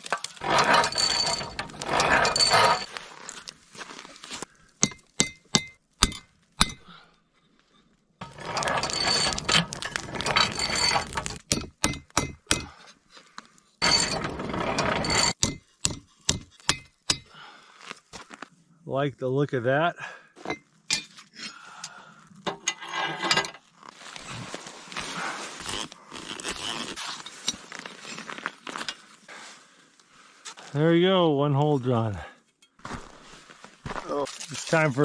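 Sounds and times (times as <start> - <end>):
tool scraping steel blade: 0.0 - 2.9, 8.2 - 12.8, 13.8 - 17.3.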